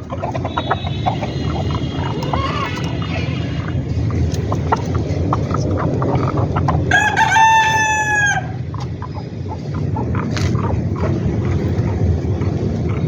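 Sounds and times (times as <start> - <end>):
hens clucking: 0.0 - 13.0
rooster crowing: 0.5 - 3.6, 6.9 - 8.6.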